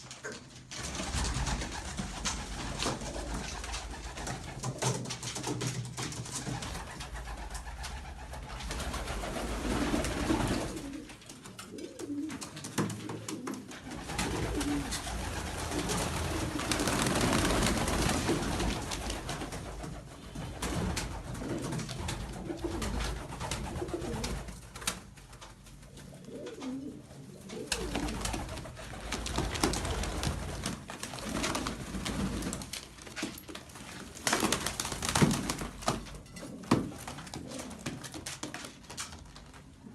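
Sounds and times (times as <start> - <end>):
pigeons cooing: 6.5 - 24.6, 25.9 - 30.5.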